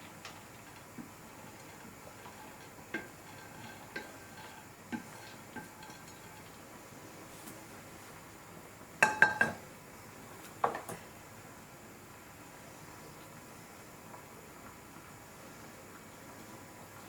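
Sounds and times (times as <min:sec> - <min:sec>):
utensil clinking against cookware: 0:09.0 - 0:09.6.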